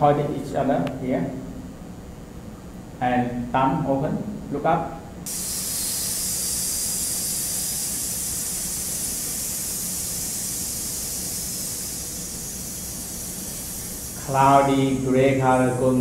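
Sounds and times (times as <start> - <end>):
man hissing exhale: 5.3 - 15.0.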